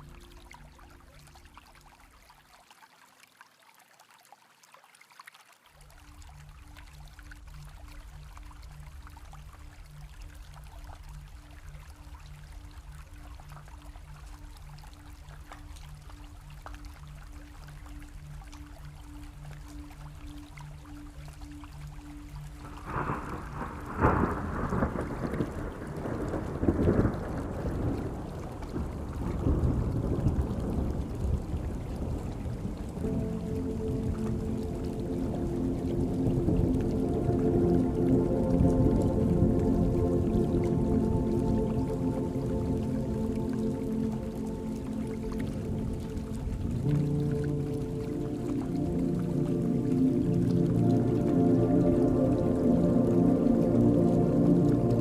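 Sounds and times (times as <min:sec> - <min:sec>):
rain patter: 0:00.0 - 0:55.0
thunder rumbling: 0:22.6 - 0:33.3
low pulsing tone: 0:33.0 - 0:55.0.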